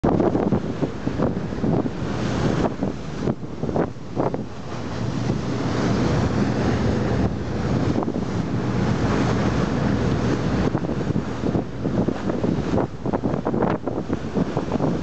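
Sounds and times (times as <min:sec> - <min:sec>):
sea waves washing: 0:00.0 - 0:15.0
wind buffeting microphone: 0:00.0 - 0:15.0.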